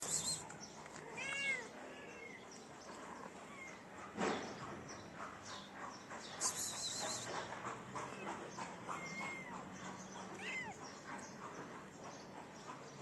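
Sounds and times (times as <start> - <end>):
cat meowing: 1.2 - 2.4, 10.3 - 10.8.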